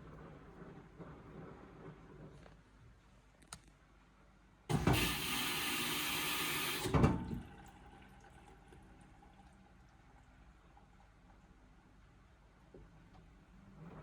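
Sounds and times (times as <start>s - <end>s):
water rushing into washing machine: 4.7s - 10.2s.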